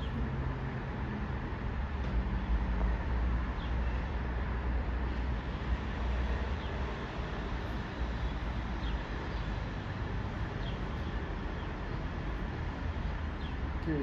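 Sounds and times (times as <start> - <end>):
rumble of vehicles: 0.0 - 14.0.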